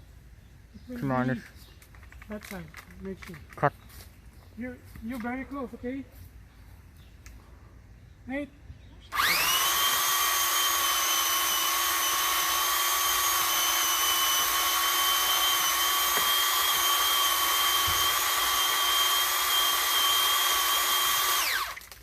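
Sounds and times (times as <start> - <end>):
pole saw motor whining: 9.1 - 22.0.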